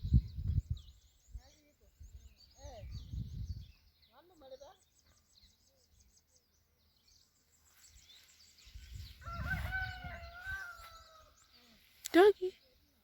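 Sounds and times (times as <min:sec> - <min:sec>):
wind rumble on microphone: 0:00.0 - 0:03.9, 0:08.6 - 0:11.2
small birds chirping: 0:00.0 - 0:13.0
rooster crowing: 0:09.2 - 0:11.4.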